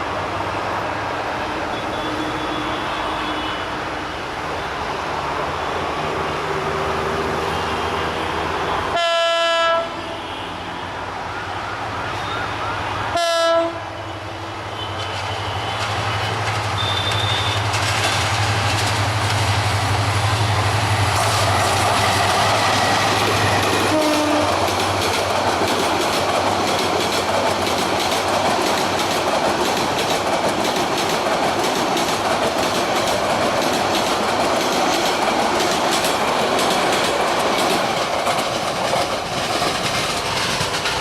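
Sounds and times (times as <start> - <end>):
train rumbling on rails: 0.0 - 41.0
locomotive horn blasts: 8.9 - 10.6, 13.1 - 13.9, 23.8 - 24.6
locomotive engine: 14.6 - 41.0.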